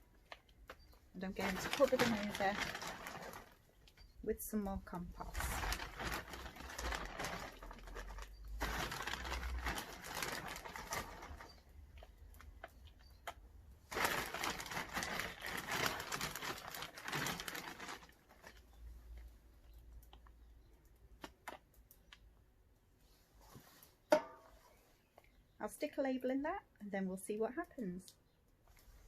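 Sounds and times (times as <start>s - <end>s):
compost rustling into a pot: 0.3s - 13.3s, 13.9s - 19.2s.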